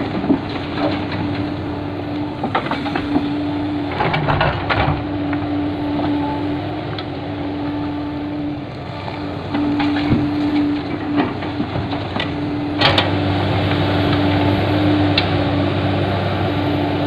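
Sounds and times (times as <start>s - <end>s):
diesel machinery whining: 0.0s - 17.0s
excavator knocks: 2.3s - 5.3s.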